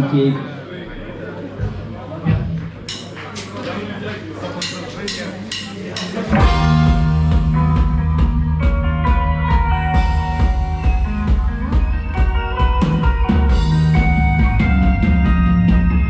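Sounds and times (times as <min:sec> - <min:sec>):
rock band playing: 0:05.4 - 0:16.0.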